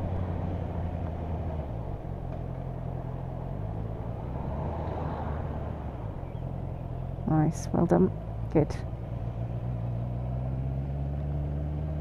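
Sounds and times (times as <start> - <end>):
motorcycle engine running: 5.7 - 12.0.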